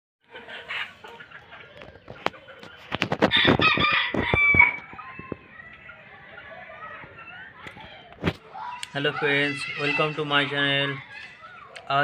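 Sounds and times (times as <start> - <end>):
chickens clucking: 0.2 - 12.0
rooster crowing: 3.3 - 4.8.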